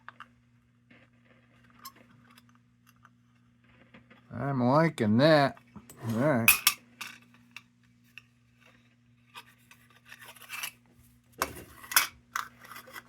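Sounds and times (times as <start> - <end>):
faint electrical hum: 0.0 - 13.0
metal scraping and rubbing: 5.9 - 6.7.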